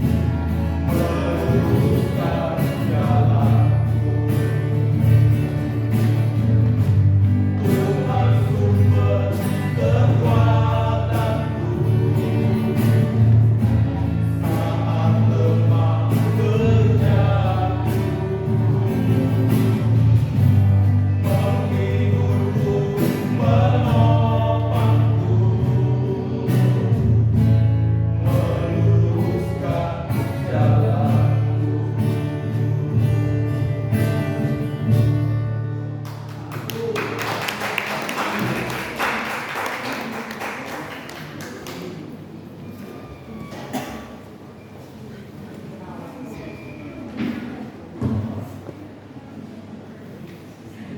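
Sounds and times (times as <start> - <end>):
gospel choir singing: 0.6 - 4.3, 7.4 - 27.4, 28.1 - 33.6.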